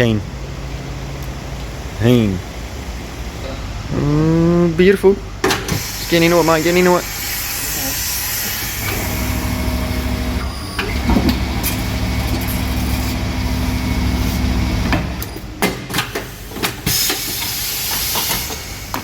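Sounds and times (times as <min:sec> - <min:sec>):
electric motor humming: 0:06.0 - 0:15.3.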